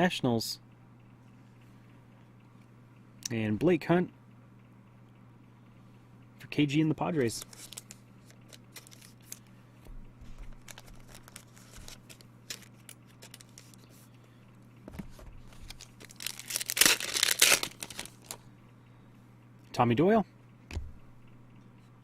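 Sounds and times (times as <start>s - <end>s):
cards rustling and clicking: 7.0s - 9.5s, 10.2s - 14.1s, 14.9s - 18.4s
card pack wrapper ripping: 7.1s - 9.4s, 10.4s - 13.9s, 15.4s - 18.4s.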